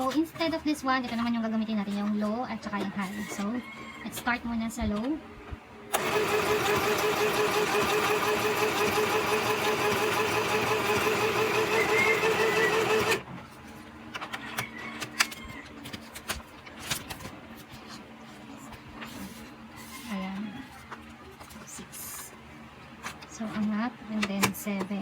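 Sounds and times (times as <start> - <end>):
sewing machine stitching: 5.9 - 13.2.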